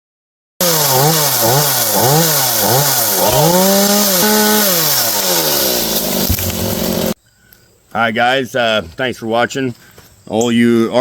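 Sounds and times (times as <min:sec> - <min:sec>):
chainsaw engine revving: 0:00.6 - 0:07.2.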